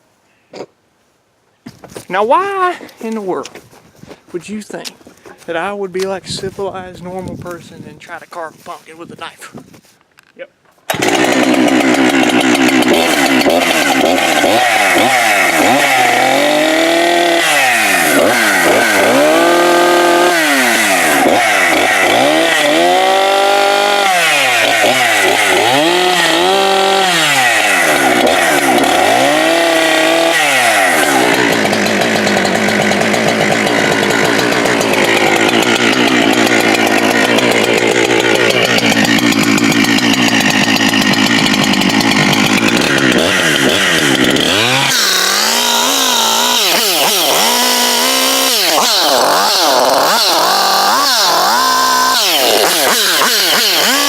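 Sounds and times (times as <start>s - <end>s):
chainsaw revving: 10.9s - 54.0s.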